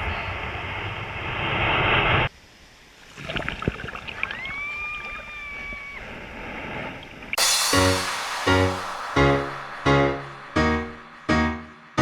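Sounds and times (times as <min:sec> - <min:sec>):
ocean surf: 0:07.4 - 0:12.0.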